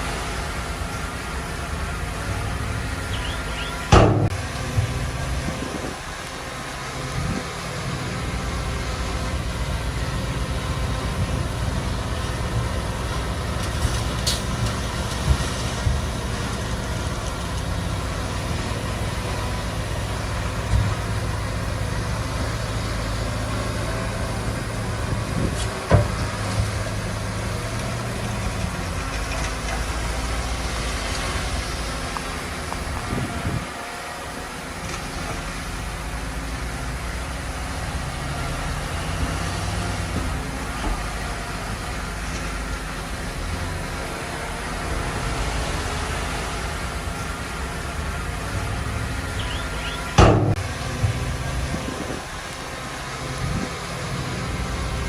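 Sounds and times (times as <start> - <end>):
diesel engine running: 0.0 - 55.0
sharp knocks: 3.9 - 4.9.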